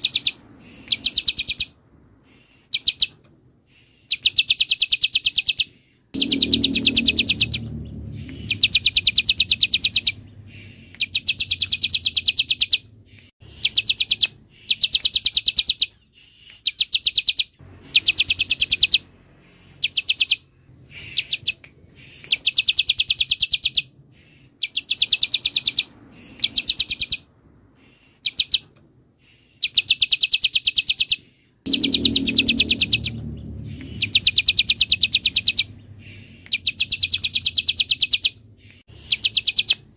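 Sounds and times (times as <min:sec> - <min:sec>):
bird rapid high trills: 0:04.1 - 0:12.8, 0:16.6 - 0:27.3, 0:29.6 - 0:38.4
faint low rumble: 0:06.2 - 0:13.3, 0:31.7 - 0:39.2.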